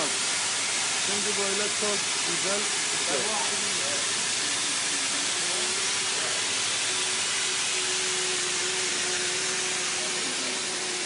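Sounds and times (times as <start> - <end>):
spray gun hissing: 0.0 - 11.0.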